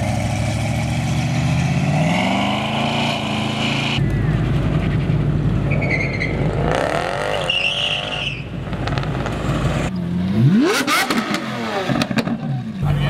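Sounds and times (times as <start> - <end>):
car engines accelerating: 0.0 - 13.0.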